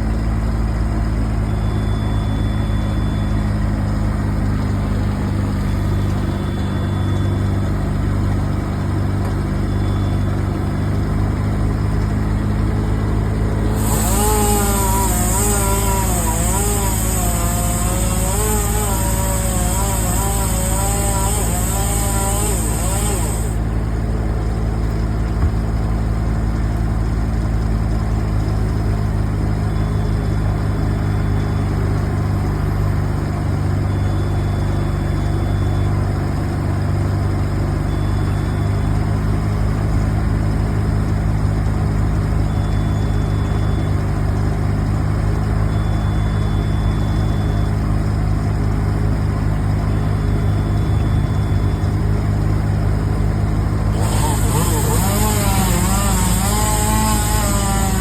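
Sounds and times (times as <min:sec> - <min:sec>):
large engine idling: 0:00.0 - 0:58.0
faint thin high tone: 0:01.5 - 0:03.4, 0:06.0 - 0:07.5.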